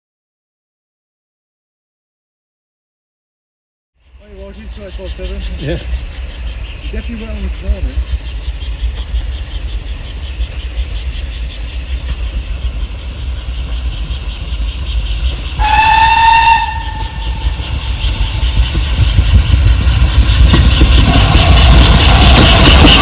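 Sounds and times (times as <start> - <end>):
steam locomotive whistle: 15.6 - 18.2.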